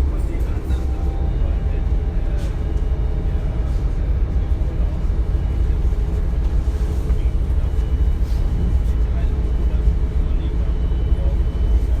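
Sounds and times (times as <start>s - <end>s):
train rumbling: 0.0s - 10.2s.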